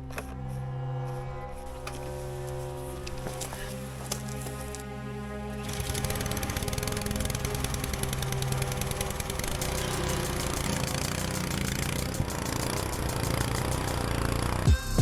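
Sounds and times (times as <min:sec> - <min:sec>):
pressure washer engine running: 0:05.6 - 0:14.7.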